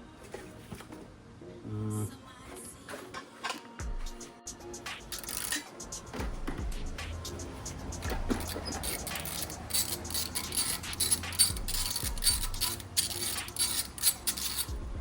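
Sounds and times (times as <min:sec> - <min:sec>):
metallic clicks of hand tools: 0:04.9 - 0:05.7, 0:07.2 - 0:14.8.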